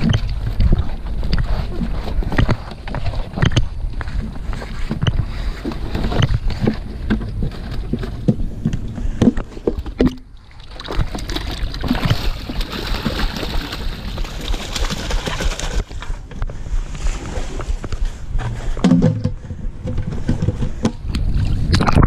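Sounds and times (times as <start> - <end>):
plastic bucket lid rattling: 4.9 - 16.0, 18.8 - 21.1
water splashing into stream: 10.0 - 15.9.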